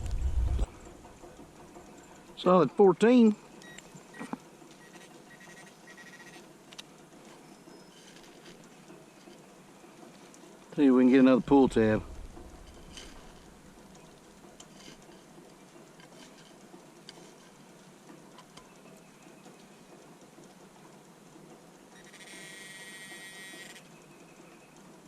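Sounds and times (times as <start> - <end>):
faint ticks and taps: 12.0 - 22.2.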